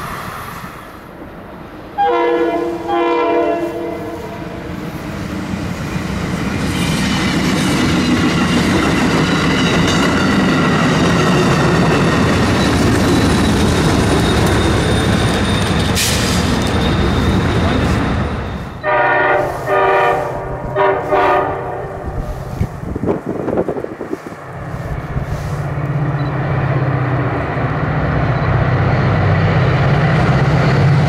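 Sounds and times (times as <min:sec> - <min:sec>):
train rumble and wheel clatter: 0:00.0 - 0:31.0
train horn blasts: 0:02.0 - 0:04.7, 0:18.8 - 0:22.3.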